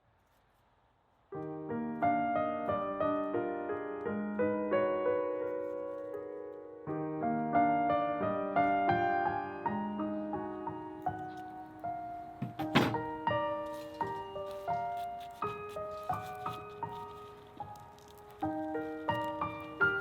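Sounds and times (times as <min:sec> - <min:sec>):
slow piano melody: 0:01.3 - 0:20.0.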